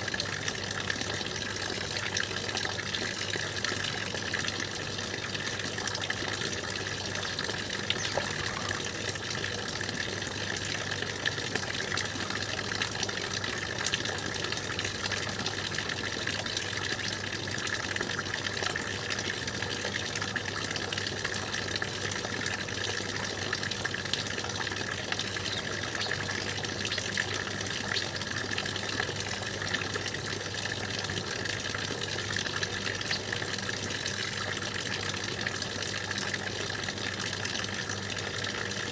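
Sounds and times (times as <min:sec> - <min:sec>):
stream water rushing: 0:07.2 - 0:09.3
droplet splashes: 0:07.6 - 0:09.1.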